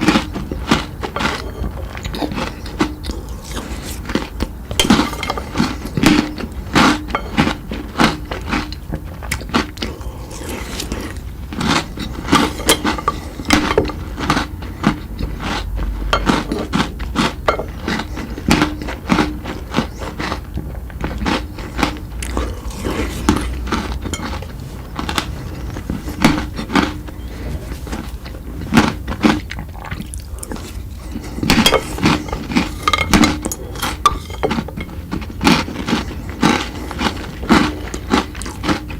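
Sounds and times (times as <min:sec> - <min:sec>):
chewing and mouth clicks: 0:00.0 - 0:38.9
crunchy bites: 0:00.0 - 0:38.9
clinks: 0:04.7 - 0:06.4, 0:12.2 - 0:14.0, 0:31.4 - 0:35.0.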